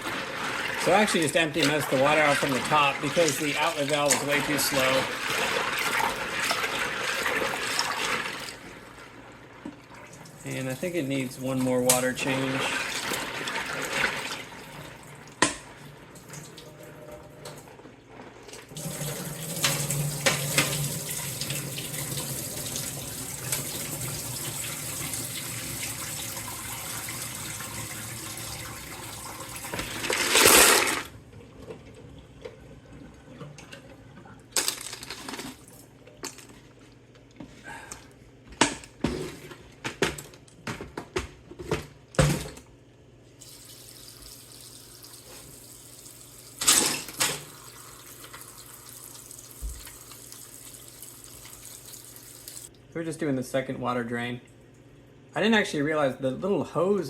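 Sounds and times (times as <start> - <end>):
water gushing: 0.0 - 8.6, 10.0 - 15.3, 18.7 - 31.1
water splashing into a tub: 0.0 - 8.7.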